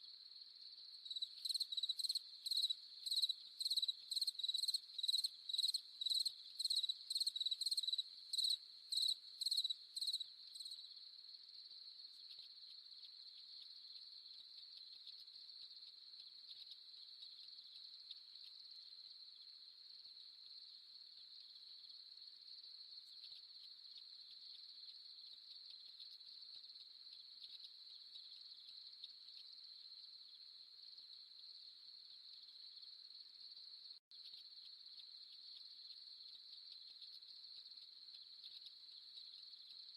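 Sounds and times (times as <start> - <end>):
crickets chirping: 0.0 - 39.9
high insect trill: 1.0 - 10.8.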